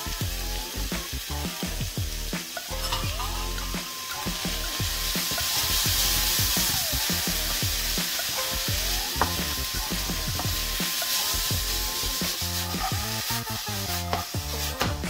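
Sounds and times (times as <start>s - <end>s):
background music: 0.0s - 15.0s
vegetables sizzling in skillet: 0.0s - 15.0s
wooden spatula scraping pan: 10.3s - 15.0s.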